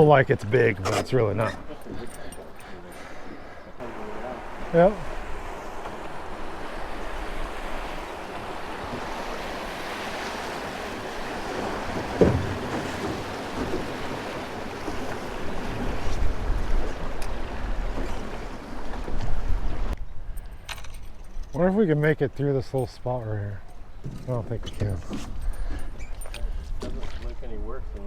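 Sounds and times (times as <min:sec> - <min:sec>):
river water rushing: 0:03.8 - 0:19.0
wind buffeting microphone: 0:04.4 - 0:21.5.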